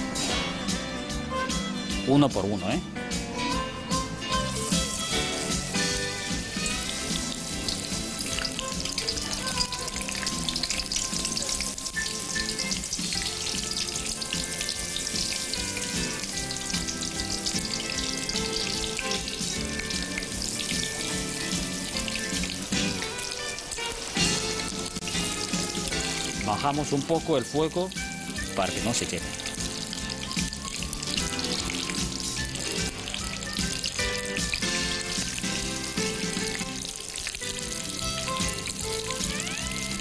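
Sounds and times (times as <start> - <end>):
background music: 0.0 - 40.0
food sizzling in hot oil: 3.9 - 40.0.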